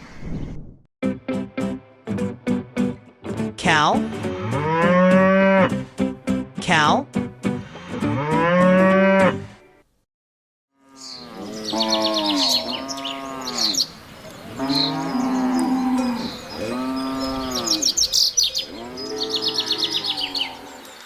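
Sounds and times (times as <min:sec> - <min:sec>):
cattle mooing: 0:04.2 - 0:05.8, 0:07.9 - 0:09.4, 0:10.8 - 0:20.8
small birds chirping: 0:11.0 - 0:21.0.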